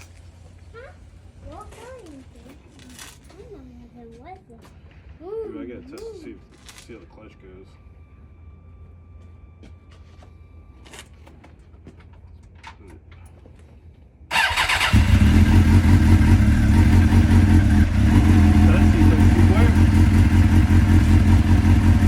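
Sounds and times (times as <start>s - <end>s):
starter motor cranking: 14.3s - 16.3s
motorcycle engine idling: 14.3s - 22.0s.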